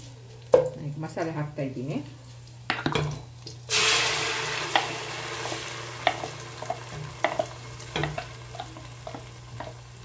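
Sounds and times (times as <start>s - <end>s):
paste sizzling in hot oil: 3.7s - 10.0s.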